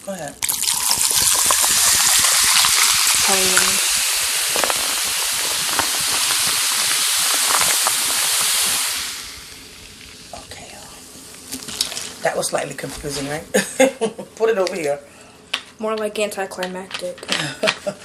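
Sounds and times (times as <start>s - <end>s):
soda pouring into a cup: 0.4s - 10.4s
soda fizzing hiss: 0.4s - 12.4s.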